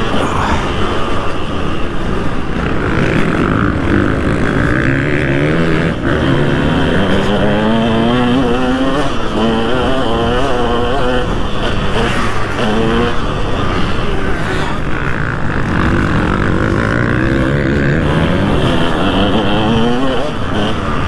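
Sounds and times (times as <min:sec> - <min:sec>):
motocross engine revving: 0:00.0 - 0:11.2, 0:15.2 - 0:21.0.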